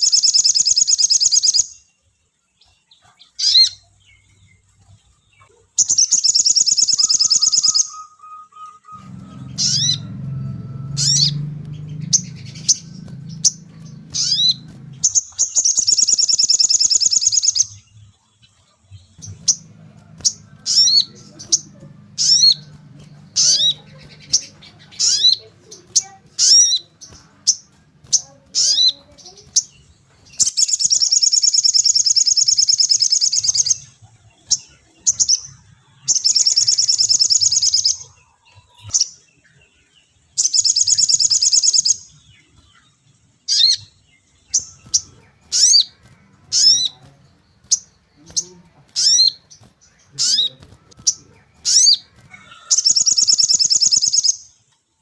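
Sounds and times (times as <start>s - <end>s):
bird chirping: 0.0s - 55.0s
bird trilling: 5.8s - 17.8s, 19.1s - 39.2s, 40.4s - 42.1s, 43.5s - 54.5s.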